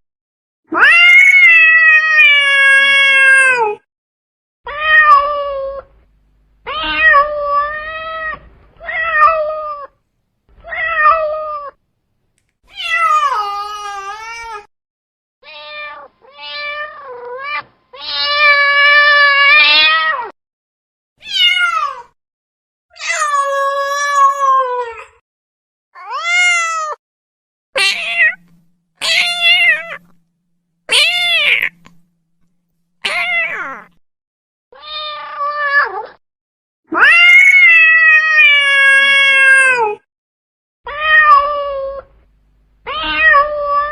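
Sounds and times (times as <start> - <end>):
cat meowing: 4.7 - 5.9, 6.6 - 10.0, 10.6 - 11.8, 12.7 - 14.7, 15.4 - 20.3, 21.2 - 22.1, 26.0 - 27.0, 27.8 - 30.2, 30.9 - 32.1, 33.0 - 34.0, 34.8 - 36.2, 40.9 - 42.1, 42.9 - 43.9.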